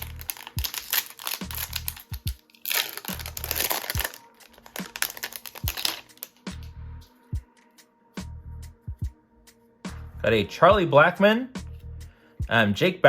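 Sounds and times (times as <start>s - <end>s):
wrapper crinkling and tearing: 0.0s - 6.5s
music with kick-drum beat: 1.4s - 2.4s, 3.2s - 7.6s, 8.2s - 9.2s, 9.9s - 10.9s, 11.6s - 12.6s.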